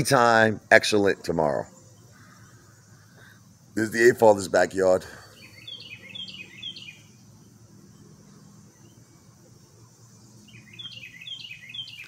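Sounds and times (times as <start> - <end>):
faint low background hum: 0.0 - 12.0
songbird whistled notes: 5.3 - 7.2, 10.4 - 12.0.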